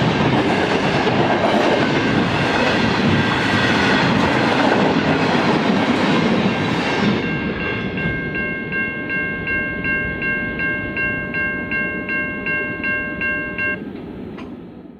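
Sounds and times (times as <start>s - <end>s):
train rumbling past: 0.0s - 14.9s
level crossing bell ringing: 7.2s - 13.9s.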